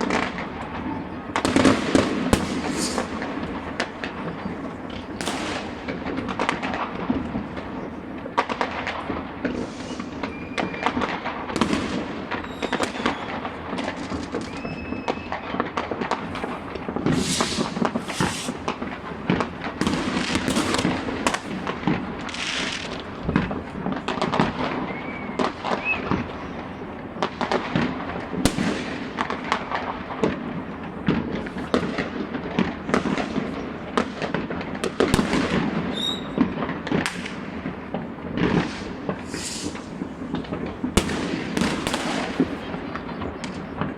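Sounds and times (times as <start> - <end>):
rockets whistling: 0.0 - 8.2, 9.5 - 27.8, 35.1 - 37.9, 38.5 - 43.9
fireworks bangs and crackles: 0.0 - 43.9.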